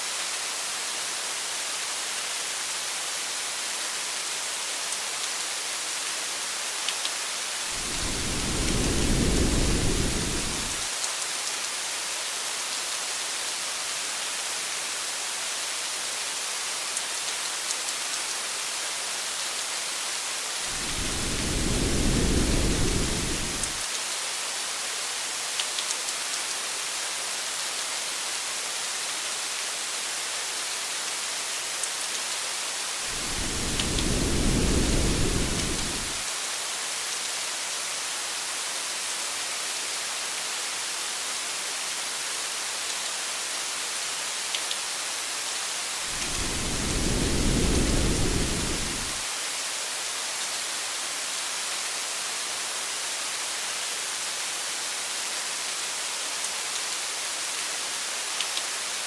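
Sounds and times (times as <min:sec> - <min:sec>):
rain hissing: 0:07.6 - 0:11.0, 0:20.5 - 0:23.9, 0:32.9 - 0:36.3, 0:45.9 - 0:49.3
distant thunder rumbles: 0:07.7 - 0:10.9, 0:20.7 - 0:23.8, 0:33.1 - 0:36.2, 0:46.1 - 0:49.2.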